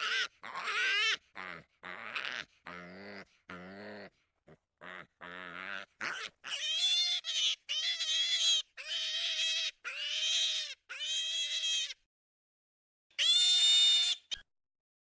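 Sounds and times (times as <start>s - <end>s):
wild boar squealing: 0.0s - 12.0s, 13.2s - 14.4s.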